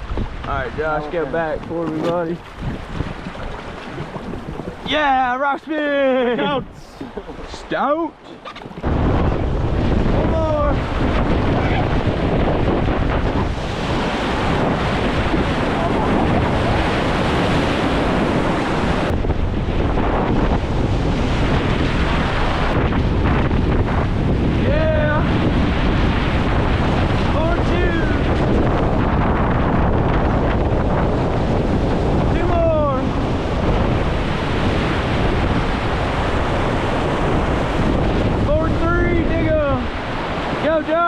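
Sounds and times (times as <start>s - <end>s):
wind rumbling on microphone: 0.0s - 41.0s
whitewater rapids rushing: 0.6s - 8.9s, 13.3s - 19.1s, 24.6s - 25.5s, 34.2s - 41.0s.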